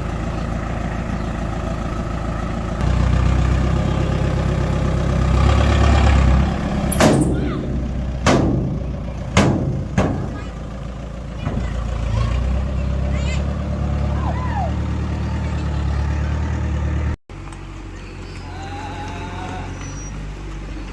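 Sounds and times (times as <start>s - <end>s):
heavy diesel machinery engine: 0.0s - 20.9s
sharp knocks: 6.9s - 10.5s.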